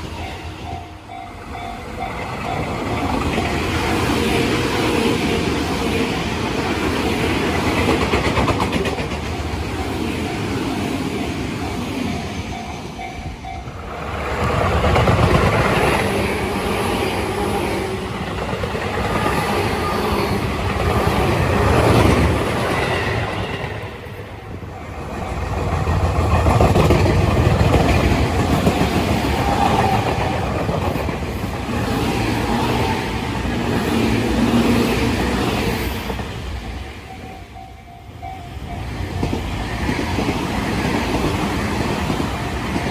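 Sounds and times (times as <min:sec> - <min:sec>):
crossing warning bell ringing: 0:00.0 - 0:05.0, 0:08.9 - 0:18.3, 0:32.4 - 0:42.9
train wheels clacking over rail joints: 0:06.1 - 0:11.3, 0:25.2 - 0:36.4.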